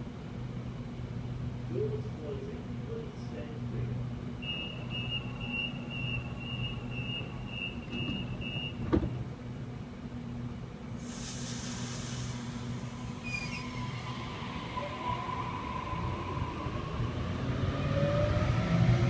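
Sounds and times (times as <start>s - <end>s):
train whine: 0.0s - 19.0s
air hiss: 11.0s - 13.7s.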